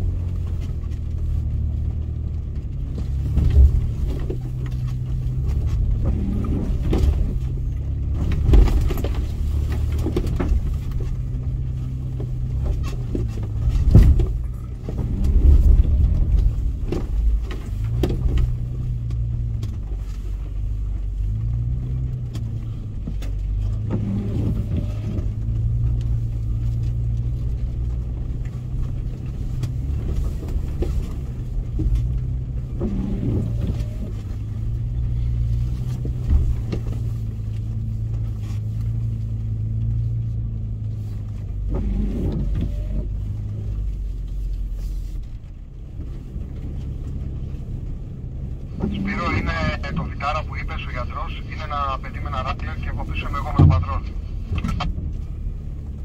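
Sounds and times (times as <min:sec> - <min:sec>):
car engine running: 0:00.0 - 0:56.0
knocks and rattles: 0:12.2 - 0:19.8.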